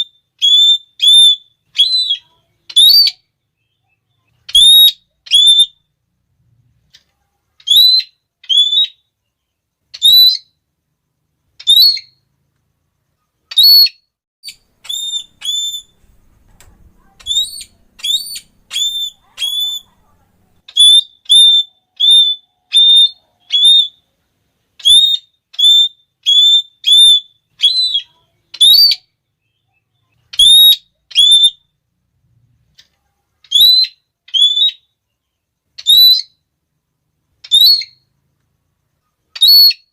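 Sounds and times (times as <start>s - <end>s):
parrot shrill call notes: 0.0s - 5.9s, 7.6s - 9.1s, 9.9s - 10.6s, 11.6s - 12.2s, 13.5s - 16.2s, 17.0s - 20.0s, 20.7s - 24.1s, 24.8s - 31.7s, 33.4s - 35.0s, 35.8s - 36.4s, 37.4s - 38.1s, 39.3s - 39.9s.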